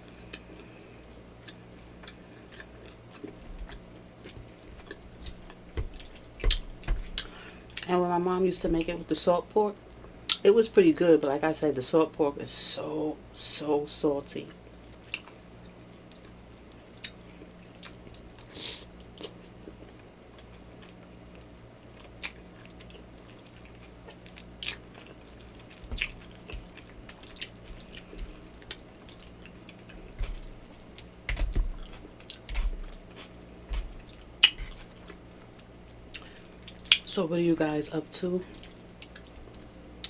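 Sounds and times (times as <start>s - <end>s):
person chewing with mouth clicks: 0.0s - 7.9s, 16.1s - 37.0s, 38.5s - 39.6s
faint steady hum: 0.0s - 40.0s.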